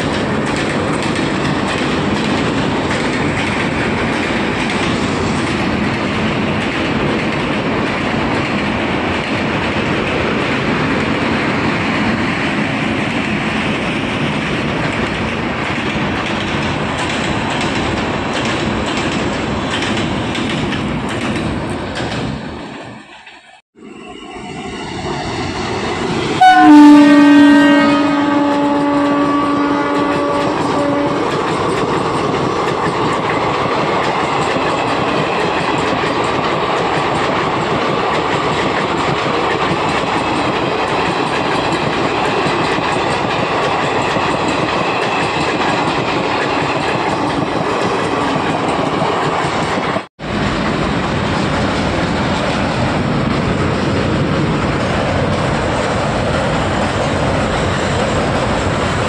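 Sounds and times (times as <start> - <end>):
train wheels on rail: 0.0 - 59.0
locomotive horn blast: 26.4 - 31.2.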